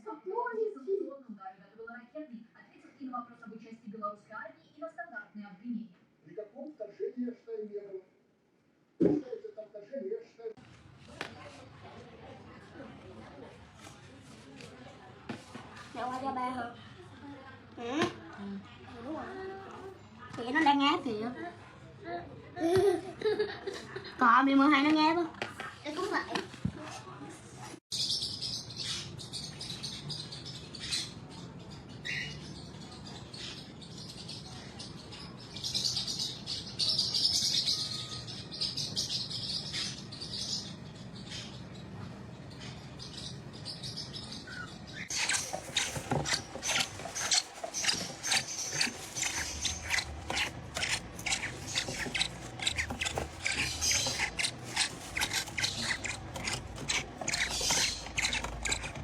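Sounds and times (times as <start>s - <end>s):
parrot chirping: 44.5s - 59.0s
rapid clicks and scratching: 45.1s - 59.0s.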